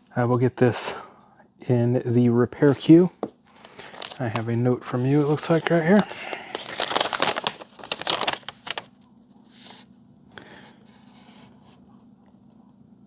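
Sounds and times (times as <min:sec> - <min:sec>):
paper and packaging crinkling: 0:02.6 - 0:09.8.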